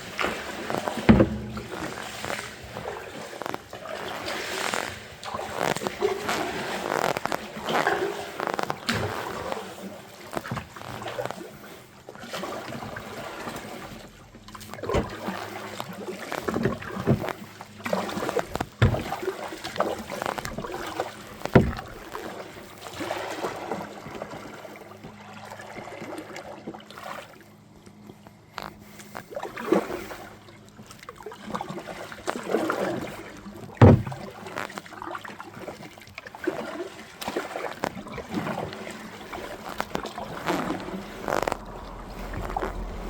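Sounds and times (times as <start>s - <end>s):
paddle splashing water: 0.0s - 43.0s
sharp knocks: 1.1s - 2.5s, 21.6s - 22.0s, 33.8s - 34.2s.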